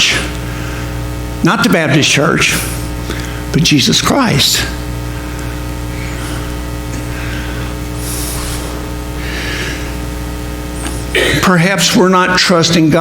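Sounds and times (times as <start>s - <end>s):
electrical hum: 0.0s - 13.0s
soft breath noises: 5.1s - 11.2s.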